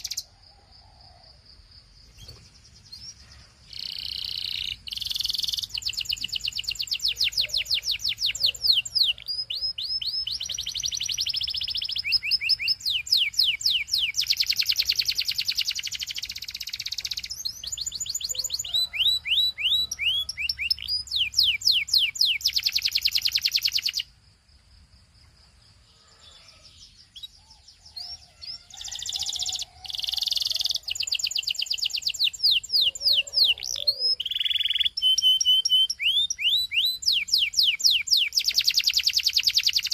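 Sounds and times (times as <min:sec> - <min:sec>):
canary singing trills: 0:00.0 - 0:01.3, 0:02.0 - 0:24.2, 0:25.8 - 0:39.9.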